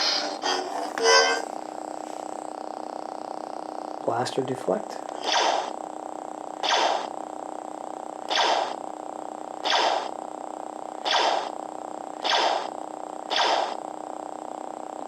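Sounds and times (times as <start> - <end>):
lightsaber blade hum: 0.0 - 3.0, 5.1 - 5.8, 6.6 - 7.2, 8.2 - 8.8, 9.6 - 10.2, 11.0 - 11.6, 12.2 - 13.8
lightsaber blaster-deflect effects: 5.2 - 5.8, 6.6 - 7.2, 8.2 - 8.8, 9.6 - 10.2, 11.0 - 11.6, 12.2 - 12.7, 13.3 - 13.8.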